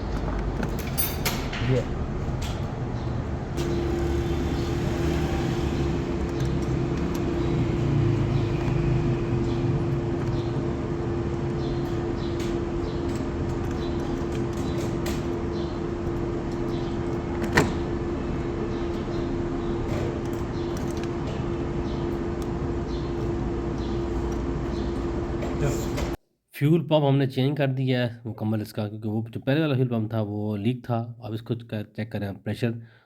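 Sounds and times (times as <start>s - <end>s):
mechanical hum with whine: 0.0s - 26.2s.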